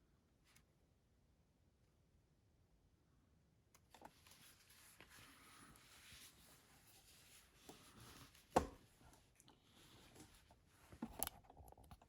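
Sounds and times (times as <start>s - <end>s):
faint handling sounds: 3.7s - 12.0s.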